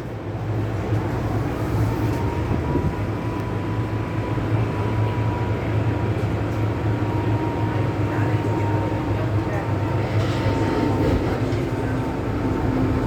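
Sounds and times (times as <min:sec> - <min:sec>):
electric train running: 0:08.8 - 0:13.0.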